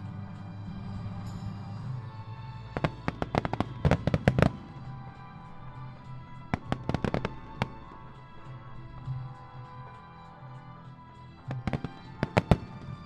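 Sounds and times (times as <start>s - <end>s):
music playing: 0.0s - 13.0s
fireworks bangs and crackles: 0.4s - 9.8s, 11.5s - 13.0s.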